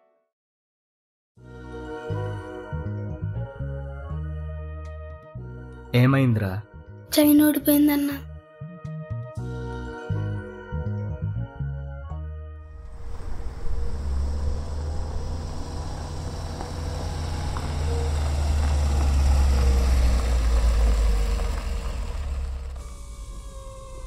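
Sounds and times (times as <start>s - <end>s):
car engine running: 12.7s - 24.0s.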